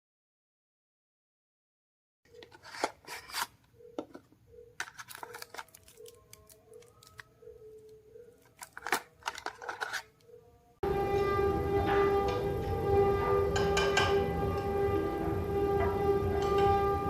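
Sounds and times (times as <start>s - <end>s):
handling clicks and rustles: 2.3s - 10.3s.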